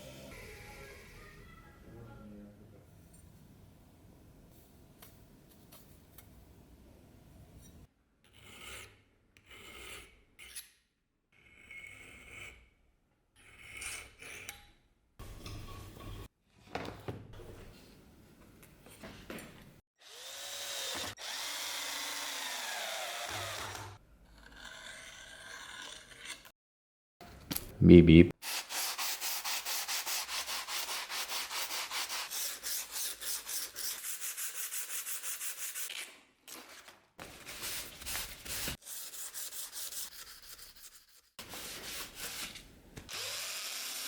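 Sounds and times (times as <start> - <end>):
small power tool running: 20.0 - 24.0, 43.1 - 44.0
filing or scraping strokes: 24.4 - 26.5, 28.4 - 36.0, 37.2 - 42.7.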